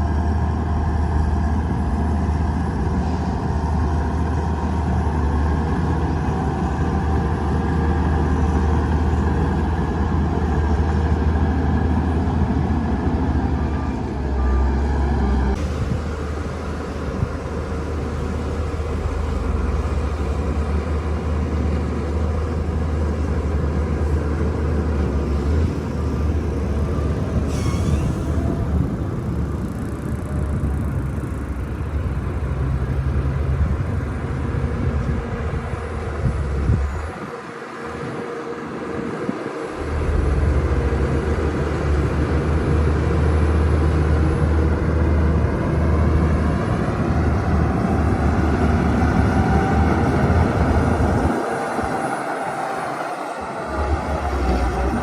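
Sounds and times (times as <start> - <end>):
bulldozer diesel engine drone: 0.0 - 55.0
brief high squeal: 27.4 - 28.7.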